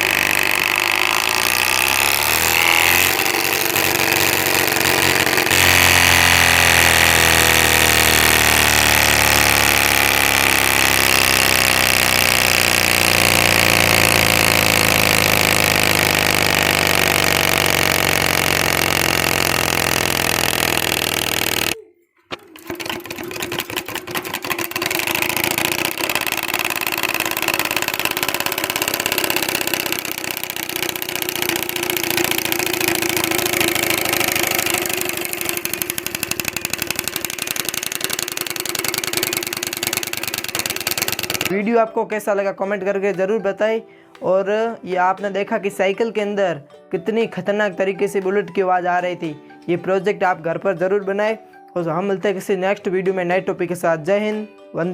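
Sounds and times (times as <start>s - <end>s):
bicycle spokes rattling bottle: 0.0s - 41.6s.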